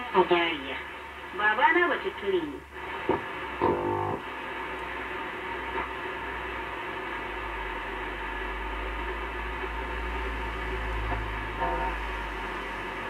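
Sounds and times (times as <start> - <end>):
radio static and hiss: 0.0 - 13.0
low hum: 2.7 - 4.9.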